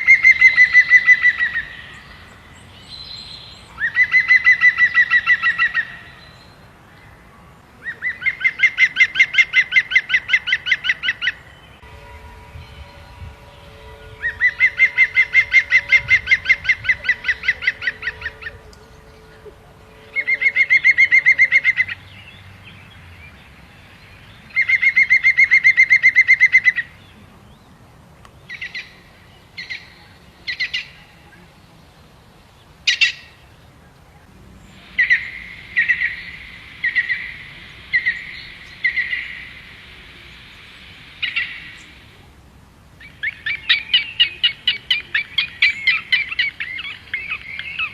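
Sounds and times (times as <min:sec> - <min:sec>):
bird calling in rapid trills: 0:00.0 - 0:02.2, 0:03.7 - 0:06.4, 0:07.8 - 0:22.2, 0:24.5 - 0:27.0, 0:34.8 - 0:39.7, 0:43.0 - 0:47.9.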